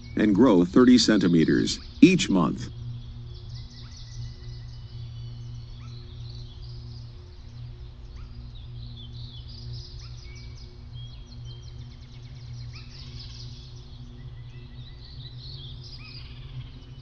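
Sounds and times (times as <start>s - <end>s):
low steady hum: 0.0s - 17.0s
small birds chirping: 0.0s - 17.0s.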